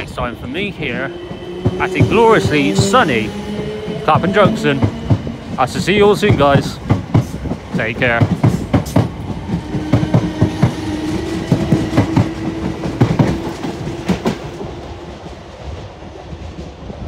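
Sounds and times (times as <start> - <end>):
train hum: 0.0 - 17.0.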